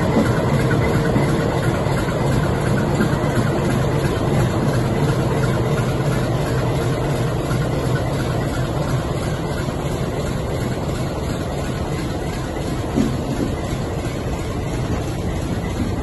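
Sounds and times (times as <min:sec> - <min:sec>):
diesel locomotive engine running: 0:00.0 - 0:16.0
wagons rolling over steel bridge: 0:00.0 - 0:16.0.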